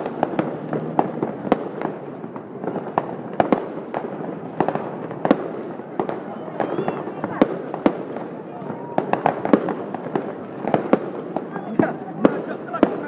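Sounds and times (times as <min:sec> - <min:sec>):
distant fireworks bursts: 0:00.0 - 0:13.0
fireworks sharp bangs: 0:00.0 - 0:13.0.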